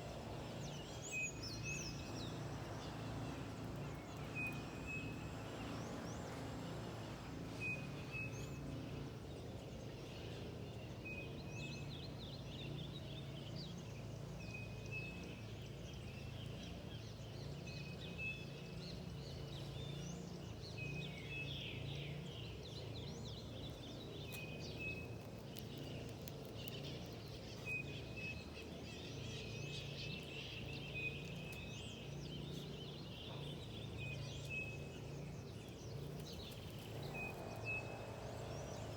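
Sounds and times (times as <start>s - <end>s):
birds chirping: 0.0s - 9.0s, 11.4s - 38.9s
low background rumble: 21.1s - 38.9s.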